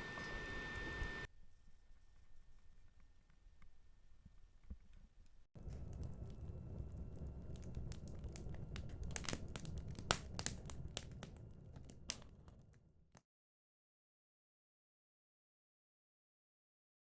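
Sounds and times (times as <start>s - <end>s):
low rumble: 5.6s - 12.8s
wood fire crackling and popping: 5.6s - 13.2s.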